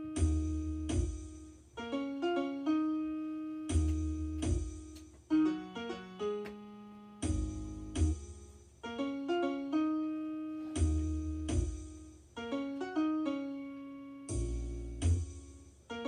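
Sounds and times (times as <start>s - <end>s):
piano playing chords: 0.0s - 16.0s.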